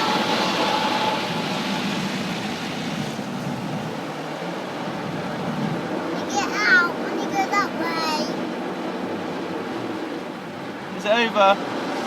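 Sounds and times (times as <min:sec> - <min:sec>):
car wash water spray and machinery: 0:00.0 - 0:12.0.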